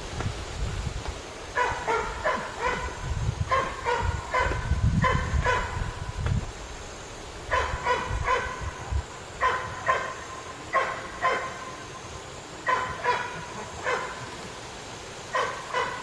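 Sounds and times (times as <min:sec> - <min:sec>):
wind rumble on microphone: 0:00.0 - 0:10.0
dog barking: 0:01.6 - 0:06.0, 0:07.5 - 0:08.8, 0:09.4 - 0:11.8, 0:12.6 - 0:14.3, 0:15.3 - 0:16.0.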